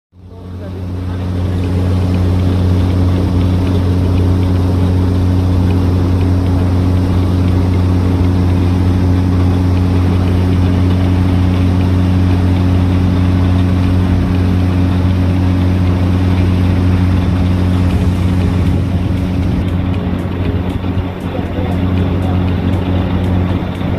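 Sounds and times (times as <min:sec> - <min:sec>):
vehicle engine idling: 0:00.2 - 0:23.9.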